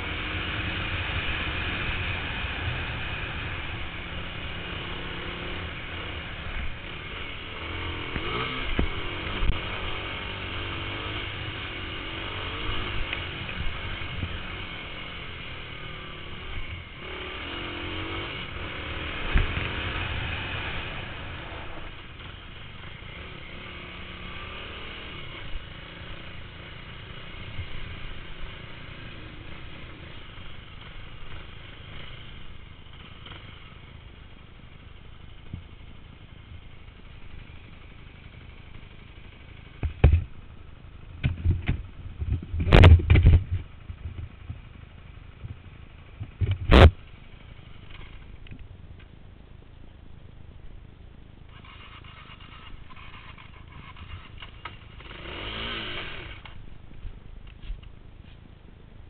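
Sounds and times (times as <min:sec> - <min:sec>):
motorcycle engines revving: 0:00.0 - 0:49.2, 0:51.2 - 0:58.5.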